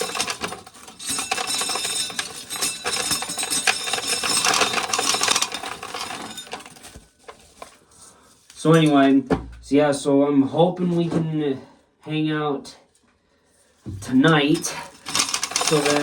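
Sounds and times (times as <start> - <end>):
kernels clinking: 0.0 - 7.7, 14.2 - 16.0
corn sheller rattling: 0.0 - 7.8, 14.0 - 16.0.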